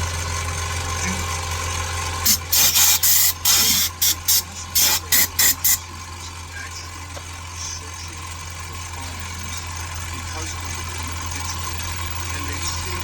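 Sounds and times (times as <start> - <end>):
steady low hum: 2.2 - 13.0
short loud hissing bursts: 2.3 - 5.8.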